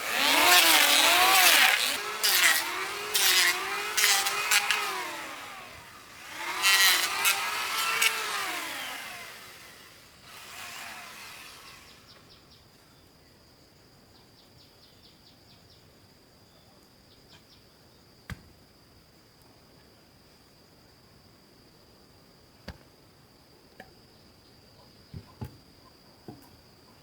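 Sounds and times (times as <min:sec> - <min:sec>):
small engine revving: 0:00.0 - 0:12.2.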